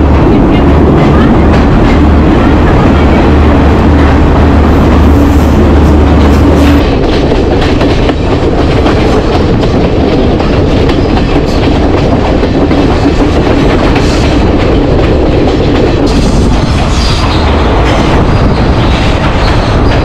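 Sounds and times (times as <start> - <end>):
loud low tunnel rumble: 0.0 - 20.0
train wheels clacking over rail joints: 6.2 - 20.0.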